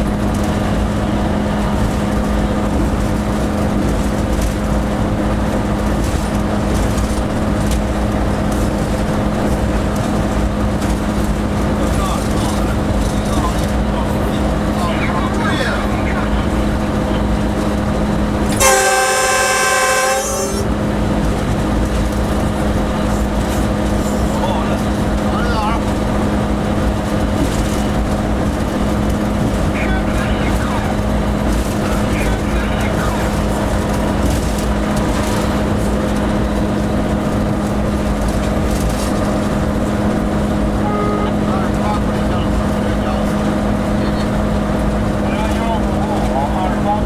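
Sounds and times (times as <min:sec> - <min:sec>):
locomotive cab rumble: 0:00.0 - 0:47.0
locomotive air horn blast: 0:18.5 - 0:21.0, 0:40.8 - 0:42.3.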